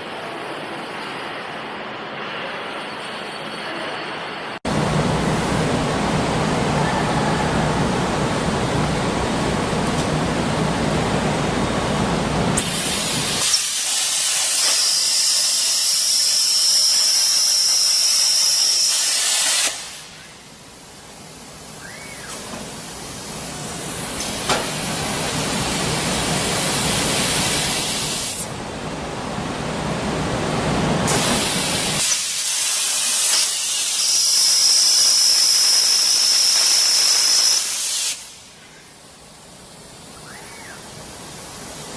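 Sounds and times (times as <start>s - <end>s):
plasma cutter hissing: 12.6s - 21.0s, 21.6s - 28.6s, 31.1s - 38.6s.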